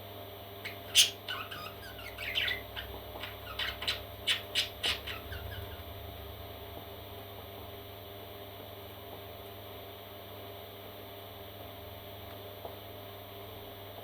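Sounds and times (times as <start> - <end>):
steady electrical hum: 0.0 - 14.0
parrot chicks squawking: 0.6 - 6.0.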